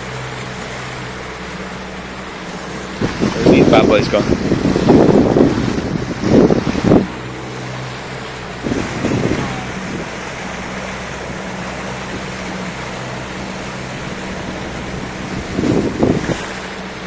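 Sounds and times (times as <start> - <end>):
boat engine droning: 0.0 - 17.0
water rushing along hull: 0.0 - 17.0
wind on microphone: 2.8 - 7.8, 8.4 - 11.4, 12.0 - 17.0.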